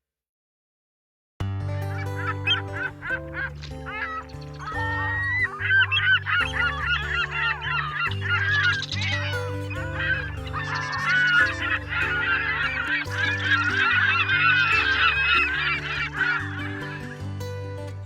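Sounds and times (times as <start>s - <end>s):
background music with bass line: 1.4s - 18.0s
geese honking: 1.9s - 17.4s.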